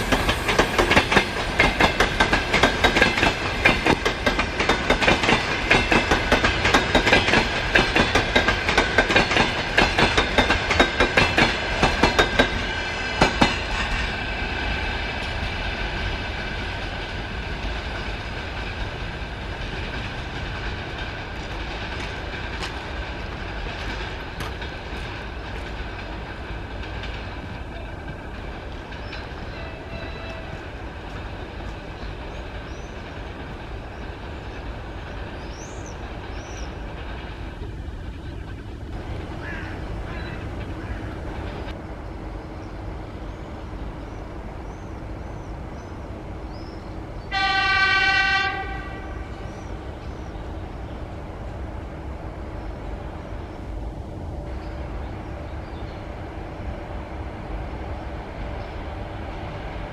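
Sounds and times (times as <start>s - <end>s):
train wheels clattering over rails: 0.0s - 41.8s.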